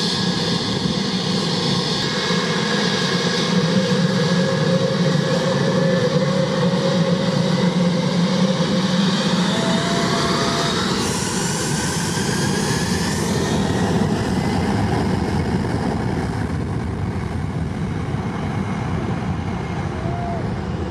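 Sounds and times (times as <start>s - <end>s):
airplane engines rushing and whining: 0.0s - 20.9s.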